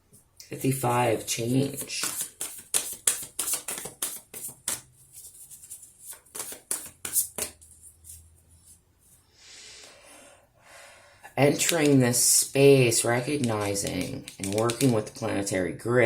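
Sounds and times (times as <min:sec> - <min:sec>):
cards being shuffled: 0:01.6 - 0:08.3, 0:11.5 - 0:12.1, 0:12.9 - 0:15.2.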